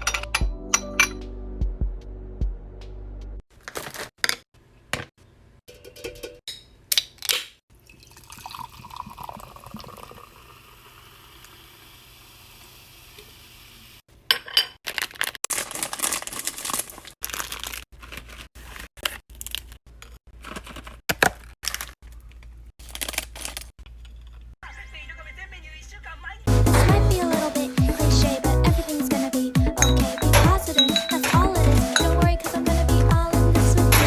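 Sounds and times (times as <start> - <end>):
plastic packaging crinkling and tearing: 3.5 - 4.1, 14.8 - 23.8.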